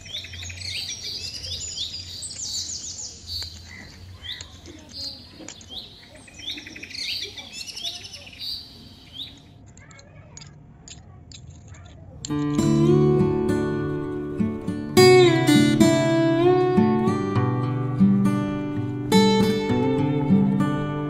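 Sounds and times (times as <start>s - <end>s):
birds chirping: 0.0s - 10.5s.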